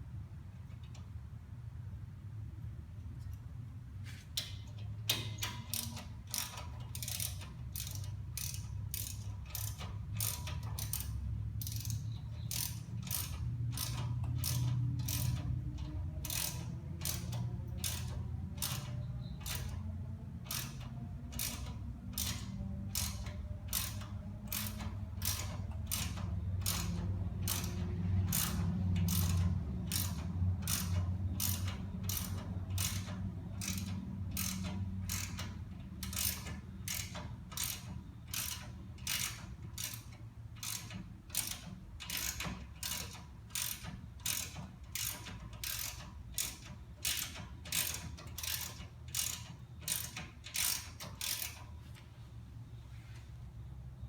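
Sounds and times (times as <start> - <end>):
hand ratchet clicking: 4.3 - 52.0.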